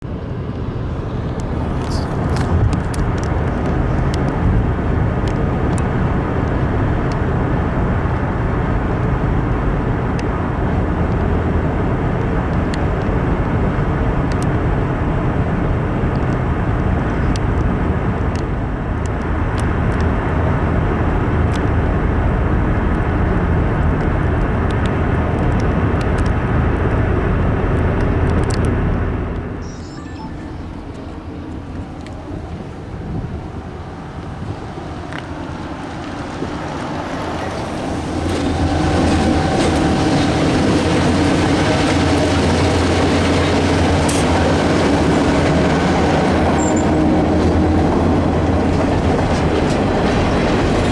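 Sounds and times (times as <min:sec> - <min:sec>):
train rumbling past: 0:25.2 - 0:50.9.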